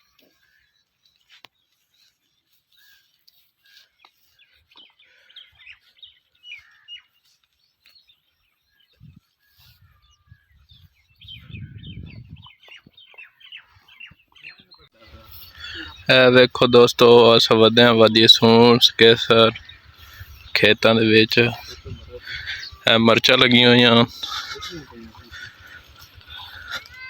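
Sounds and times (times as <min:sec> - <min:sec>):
small birds chirping: 0:00.0 - 0:27.0
low rumble on microphone: 0:10.8 - 0:12.5.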